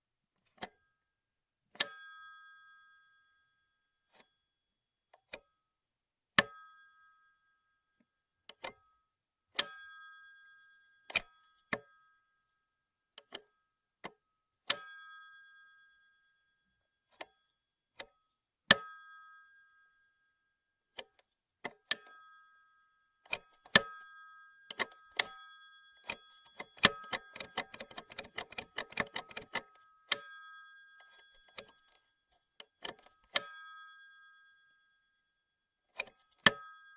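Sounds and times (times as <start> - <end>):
rotary telephone clicks and knocks: 23.3 - 24.0, 24.7 - 25.4, 26.0 - 33.6, 35.9 - 36.7
telephone bell ding: 23.3 - 32.1, 36.4 - 36.9
rotary dial rattling clicks: 26.0 - 29.8, 31.1 - 32.0, 32.6 - 33.4.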